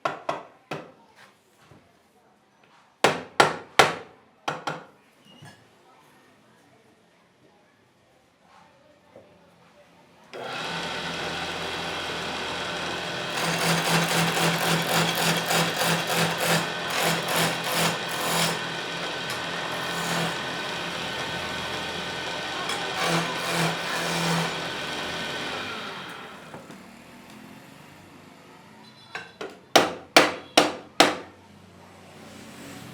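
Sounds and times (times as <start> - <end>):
cutting tool scraping wood: 10.4 - 26.6
wood lathe motor running: 10.4 - 26.8.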